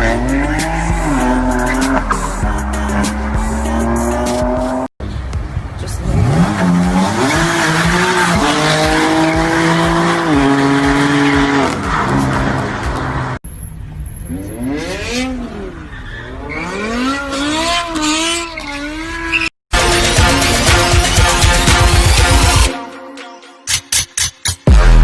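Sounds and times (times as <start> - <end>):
car engine revving: 0.0 - 22.7
tyre squeal: 15.8 - 19.5.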